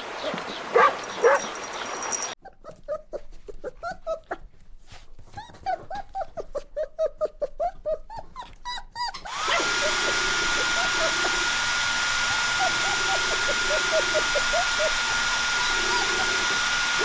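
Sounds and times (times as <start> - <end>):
puppy whimpering and yipping: 0.8 - 1.5, 2.2 - 17.0
small motor whirring: 9.1 - 17.0.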